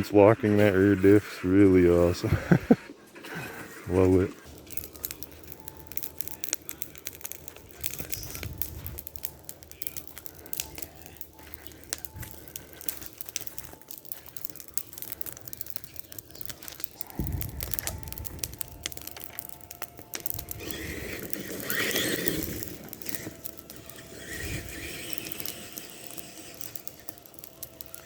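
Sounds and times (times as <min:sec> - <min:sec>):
toy truck tires crunching ground: 0:00.0 - 0:28.0
low rumble: 0:17.1 - 0:19.1.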